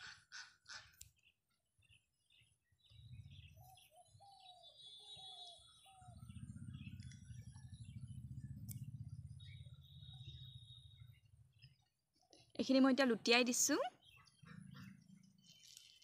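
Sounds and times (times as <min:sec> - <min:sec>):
birds chirping: 0:00.0 - 0:16.0
low rumble: 0:06.1 - 0:11.6.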